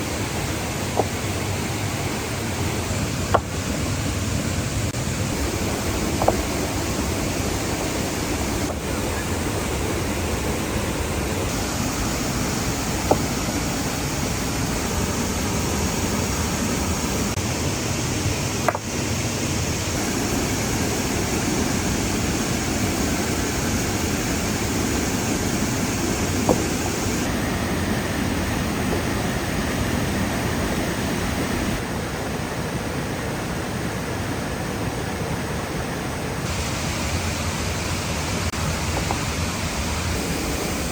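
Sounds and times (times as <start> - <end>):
waterfall rushing: 0.0 - 40.9
sharp knocks: 3.3 - 3.6, 6.2 - 6.5, 18.6 - 18.9.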